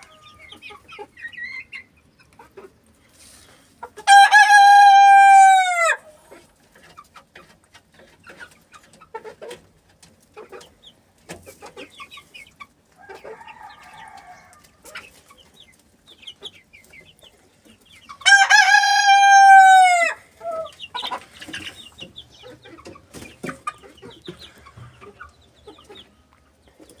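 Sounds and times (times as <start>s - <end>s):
cockerel crowing: 4.0s - 6.0s, 18.2s - 20.7s.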